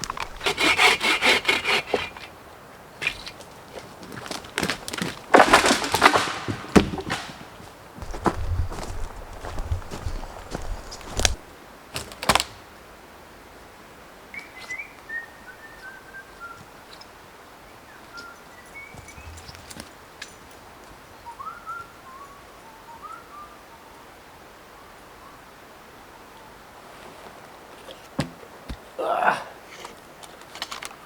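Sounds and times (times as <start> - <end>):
songbird singing: 7.9 - 11.5, 14.3 - 24.1.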